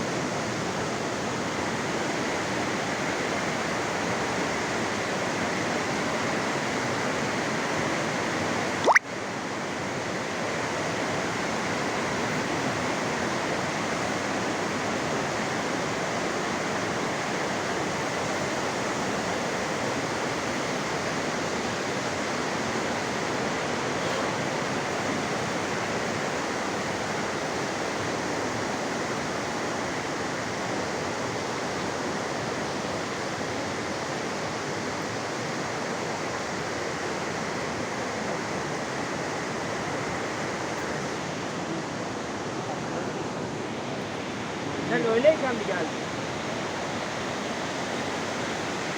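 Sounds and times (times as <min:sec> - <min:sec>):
fast-flowing river water: 0:00.0 - 0:48.9.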